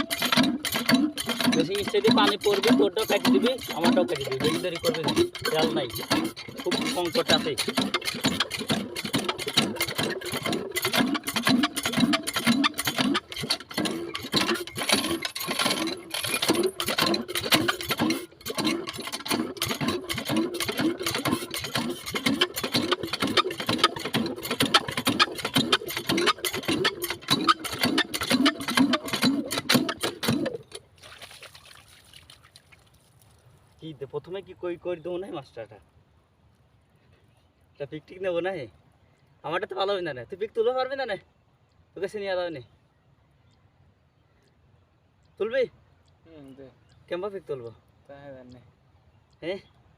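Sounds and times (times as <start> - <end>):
diesel engine thudding and clattering: 0.0 - 30.9.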